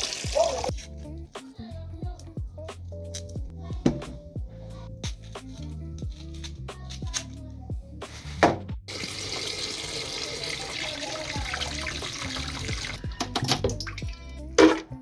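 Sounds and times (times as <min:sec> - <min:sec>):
water running from tap into sink: 0:00.0 - 0:00.7, 0:08.9 - 0:14.8.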